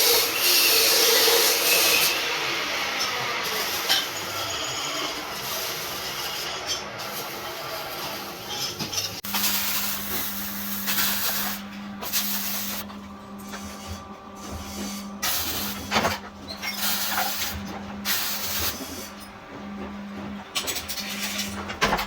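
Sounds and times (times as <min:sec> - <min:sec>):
steady machine hum: 0:09.1 - 0:22.0
tool hissing bursts: 0:09.2 - 0:12.8.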